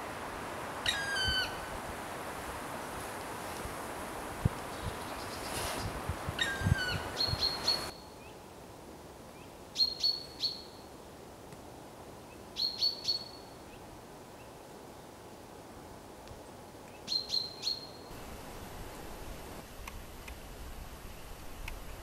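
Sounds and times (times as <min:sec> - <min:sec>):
bird chirping: 0:06.4 - 0:08.4, 0:09.8 - 0:10.8, 0:12.6 - 0:13.6, 0:16.9 - 0:19.1.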